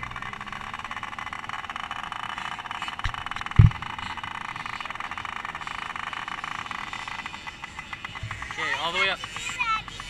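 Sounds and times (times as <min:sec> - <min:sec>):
motocross bike engine idling: 0:00.0 - 0:10.0
low thumps: 0:03.0 - 0:03.9.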